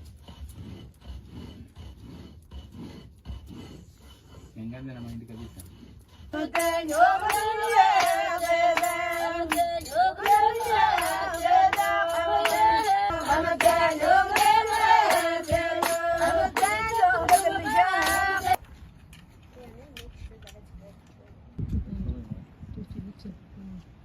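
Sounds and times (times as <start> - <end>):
sharp percussive strokes: 0.0 - 18.6
high voices singing: 6.4 - 18.6.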